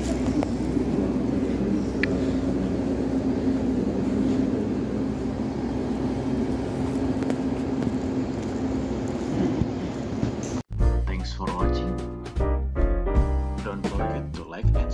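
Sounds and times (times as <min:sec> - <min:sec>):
train mechanical drone: 0:00.0 - 0:10.7.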